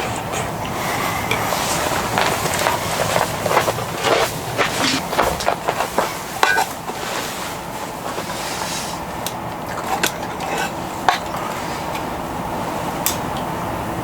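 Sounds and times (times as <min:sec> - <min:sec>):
steady rushing background noise: 0:00.0 - 0:14.0
objects clicking and knocking: 0:01.3 - 0:07.2, 0:08.0 - 0:12.1.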